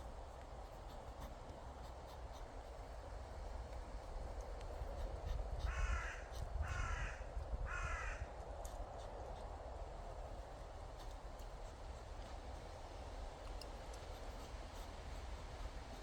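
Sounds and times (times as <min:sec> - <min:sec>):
crow cawing: 0:05.7 - 0:08.3.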